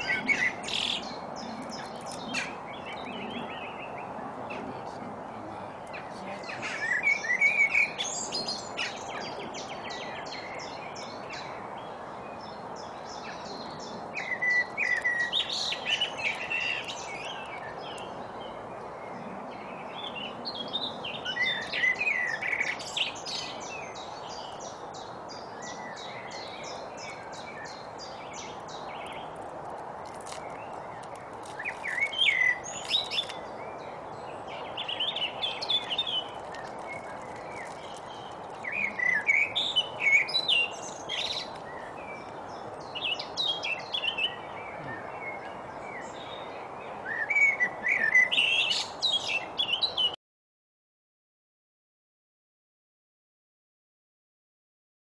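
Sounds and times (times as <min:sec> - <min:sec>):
songbirds chirping and trilling: 0:00.0 - 0:50.2.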